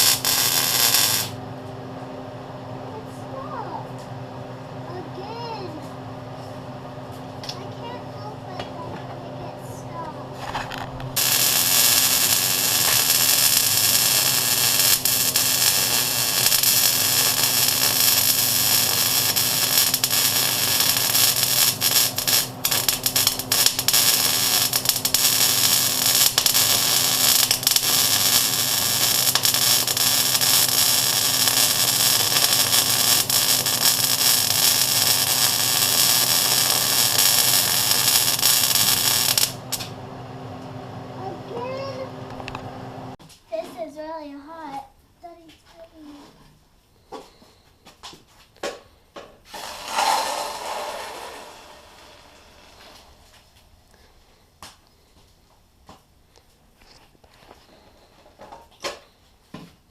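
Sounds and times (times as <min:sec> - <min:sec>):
welding arc crackling hiss: 0:00.0 - 0:01.4, 0:10.6 - 0:40.0, 0:49.5 - 0:53.4.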